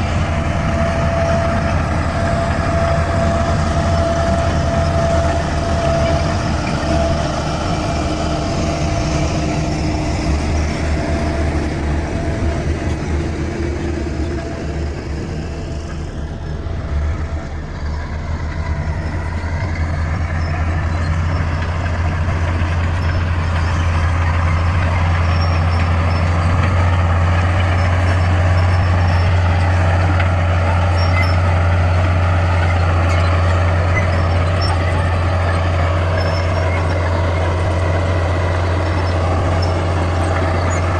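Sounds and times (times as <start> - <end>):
bulldozer diesel engine droning: 0.0 - 40.9.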